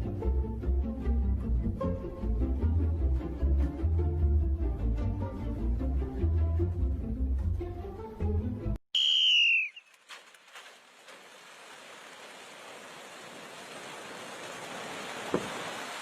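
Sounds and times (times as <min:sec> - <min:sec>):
bird whistled call: 0:09.0 - 0:10.0.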